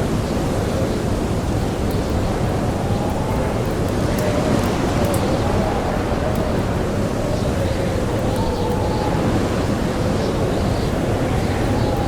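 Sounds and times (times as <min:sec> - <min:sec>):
blizzard wind howling: 0:00.0 - 0:12.0.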